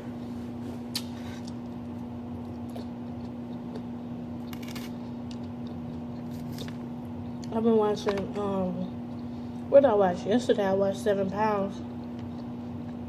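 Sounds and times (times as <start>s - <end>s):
steady low hum: 0.0s - 13.0s
chewing noises: 0.9s - 7.5s, 11.7s - 13.0s.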